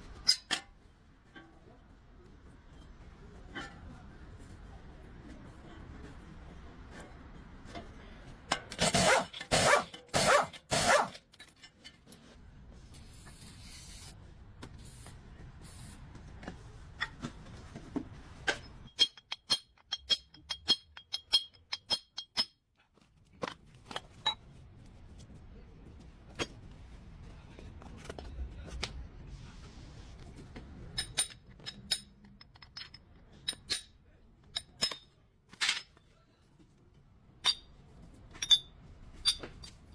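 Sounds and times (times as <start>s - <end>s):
metal tools clinking: 38.3s - 39.9s.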